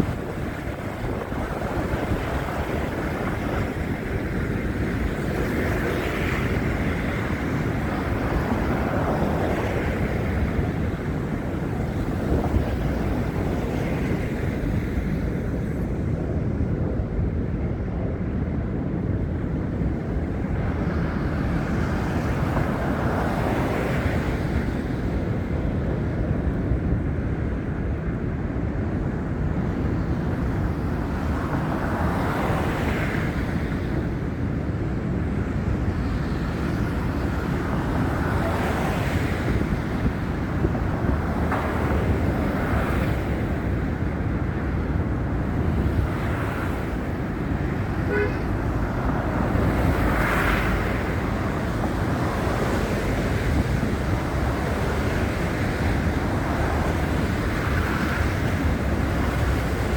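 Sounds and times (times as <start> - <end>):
wind buffeting a microphone: 0.0 - 59.9
faint traffic: 35.2 - 59.9.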